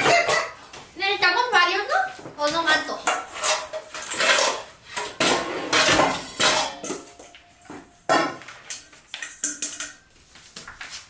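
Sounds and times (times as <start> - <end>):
kitchenware clattering: 0.0 - 0.7, 2.2 - 10.1.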